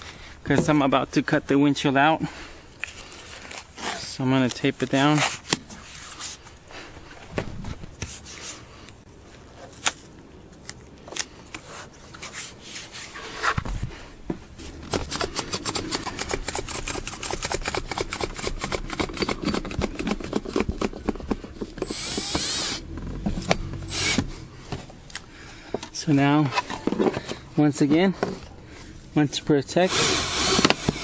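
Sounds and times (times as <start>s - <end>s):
tape ripping: 14.8s - 22.9s.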